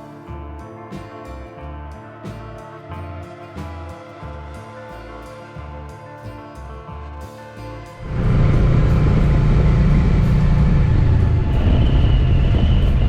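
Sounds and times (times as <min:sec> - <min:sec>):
wind noise on microphone: 0:05.0 - 0:13.0
motorcycle engine drone: 0:07.8 - 0:13.0
faint high whine: 0:08.0 - 0:13.0.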